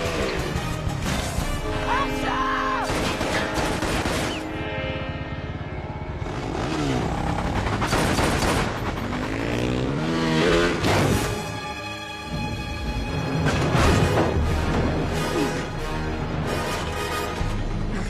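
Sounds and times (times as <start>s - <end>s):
tense orchestral score: 0.0s - 18.0s
motorcycle engines revving: 3.4s - 11.4s.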